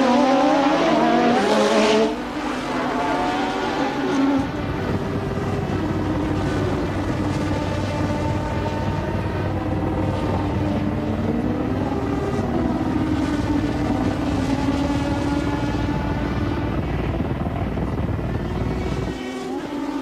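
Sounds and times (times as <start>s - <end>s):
engine drone with low rumble: 0.0s - 20.0s.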